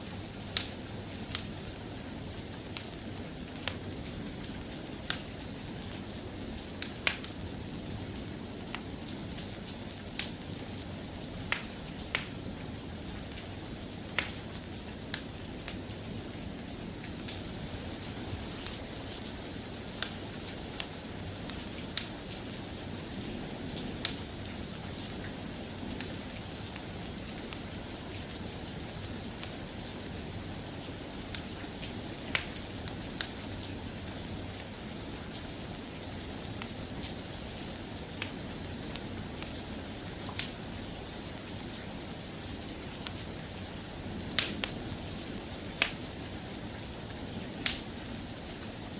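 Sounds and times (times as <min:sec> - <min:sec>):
soft steady rain: 0:00.0 - 0:48.9.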